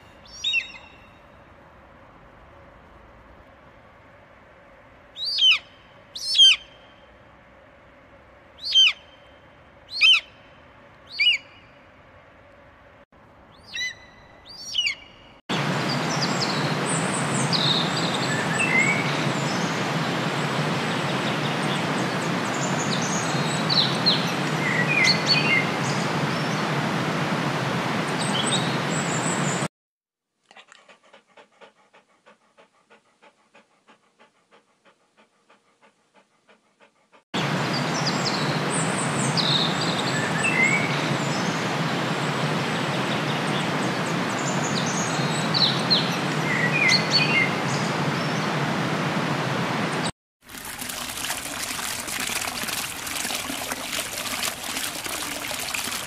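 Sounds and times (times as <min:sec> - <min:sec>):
eagle whistled calls: 0:05.2 - 0:06.8, 0:08.6 - 0:09.2, 0:09.9 - 0:10.3, 0:11.1 - 0:11.6, 0:13.6 - 0:15.1
puppies panting: 0:30.5 - 0:37.3.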